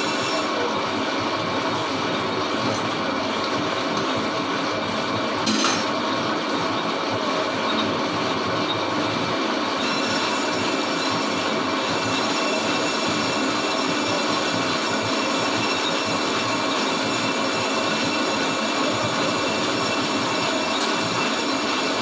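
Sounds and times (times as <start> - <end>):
lathe tool scraping metal: 0.0 - 0.7, 9.0 - 22.0.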